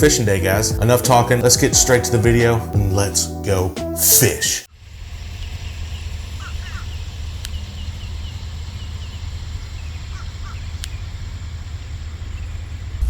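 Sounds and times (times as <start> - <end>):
birds chirping faintly: 0.0 - 13.0
low outdoor rumble: 4.7 - 13.0.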